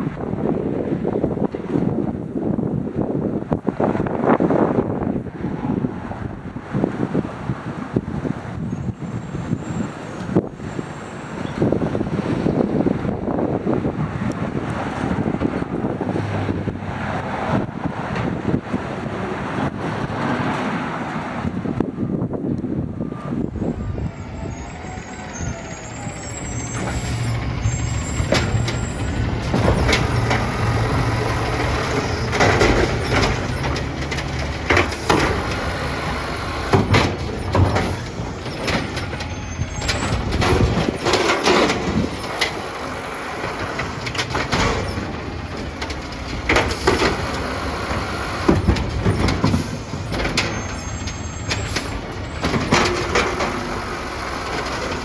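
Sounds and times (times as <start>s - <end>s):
air brakes hissing: 23.1s - 44.0s, 46.5s - 55.0s
garbage truck engine idling: 25.2s - 55.0s
loud metal clanks and bangs: 26.4s - 55.0s.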